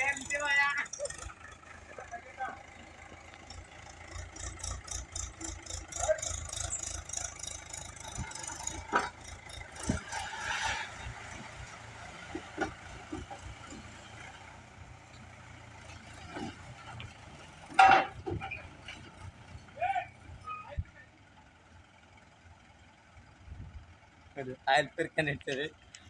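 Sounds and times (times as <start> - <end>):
tractor diesel engine throbbing: 0.0 - 26.0
sharp knocks and clunks: 12.3 - 13.8, 17.7 - 18.5.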